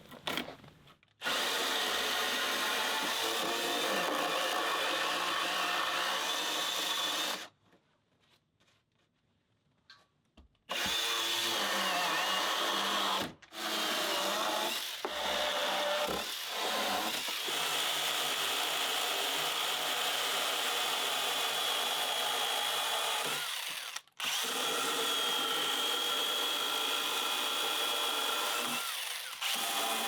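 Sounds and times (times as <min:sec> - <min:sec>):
electric power tool whining: 0:10.7 - 0:17.7, 0:22.6 - 0:30.0.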